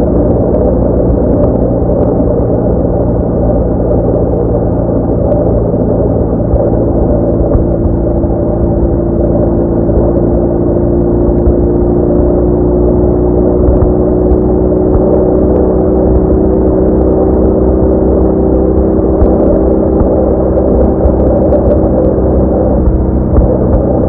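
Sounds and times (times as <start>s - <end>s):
motorcycle engine cruising: 4.8s - 24.0s.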